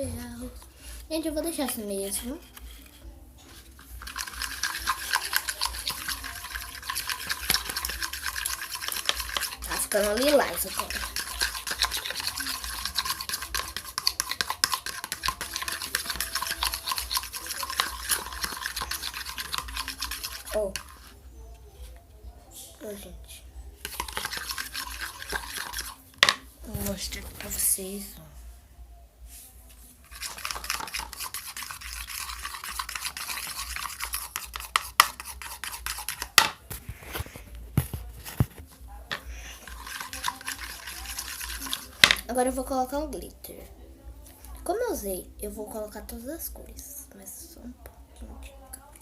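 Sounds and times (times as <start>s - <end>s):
slime being stirred in a container: 0.8s - 21.2s, 23.8s - 27.7s, 30.0s - 43.3s.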